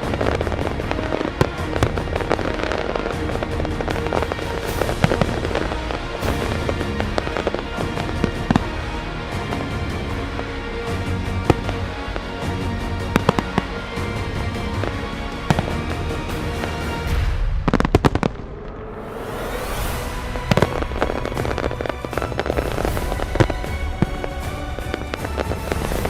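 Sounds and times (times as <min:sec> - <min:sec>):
rising firework hiss: 0:00.0 - 0:10.0, 0:15.5 - 0:26.0
fireworks crackling and popping: 0:00.0 - 0:26.0
loud firework bangs: 0:00.0 - 0:26.0
music playing: 0:00.0 - 0:26.0.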